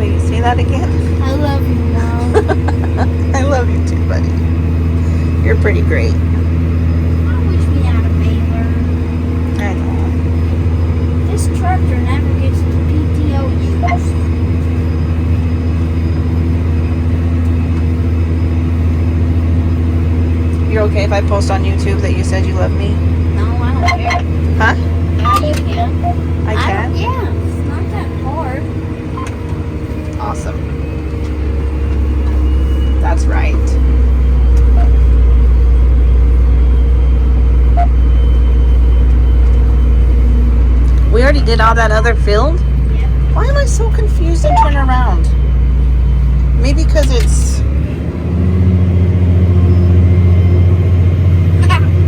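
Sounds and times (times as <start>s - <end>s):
tractor diesel engine droning: 0.0s - 52.0s
short faint beeps: 25.2s - 26.3s, 44.3s - 46.3s.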